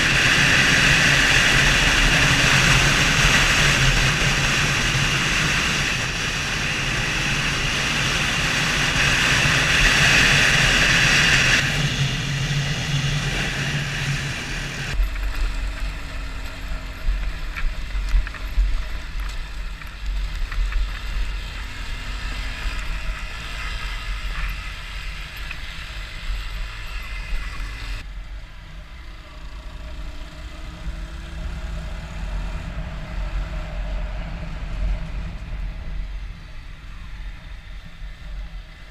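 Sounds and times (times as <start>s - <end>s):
motorcycle engine running: 0.0s - 28.1s.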